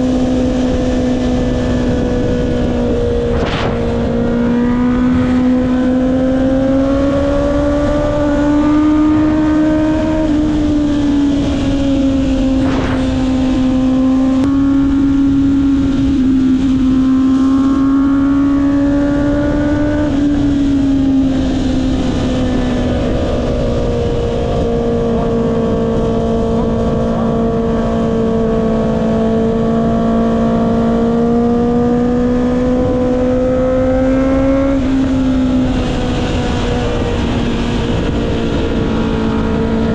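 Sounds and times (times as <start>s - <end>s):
wind rushing: 0.0s - 28.4s
motorcycle engine: 0.0s - 39.9s.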